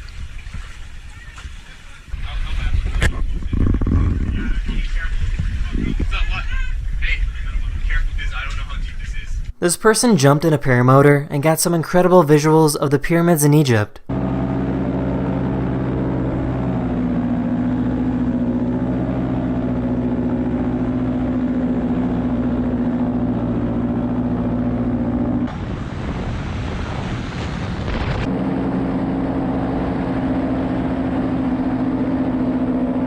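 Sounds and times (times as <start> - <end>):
paramotor engine droning: 0.6 - 8.8, 14.1 - 25.8, 28.2 - 33.0.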